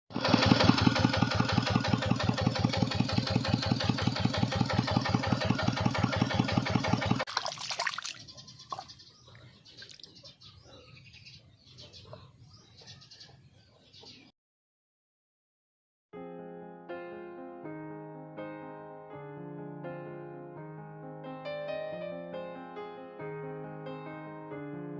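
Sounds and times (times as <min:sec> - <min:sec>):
tractor engine chugging: 0:00.1 - 0:07.3.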